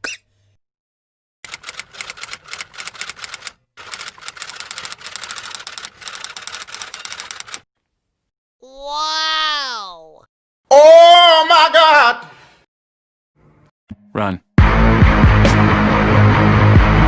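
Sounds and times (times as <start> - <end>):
typewriter keys clacking: 1.5 - 7.6.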